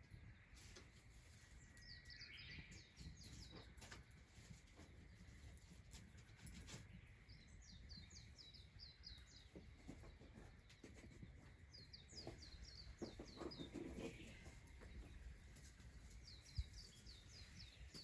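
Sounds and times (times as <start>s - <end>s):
distant songbird singing: 1.6s - 4.1s, 6.8s - 18.0s.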